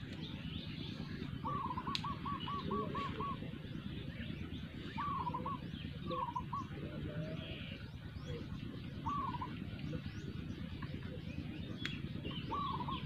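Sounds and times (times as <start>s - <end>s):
faint bird chirps: 0.0s - 13.0s
bird whistling notes: 0.1s - 8.2s, 9.0s - 9.6s, 11.7s - 13.0s.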